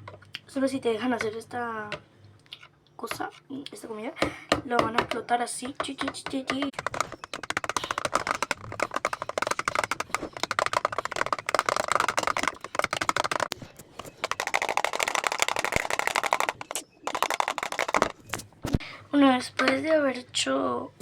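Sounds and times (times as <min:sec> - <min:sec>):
spoon beating egg in bowl: 0:04.7 - 0:18.2.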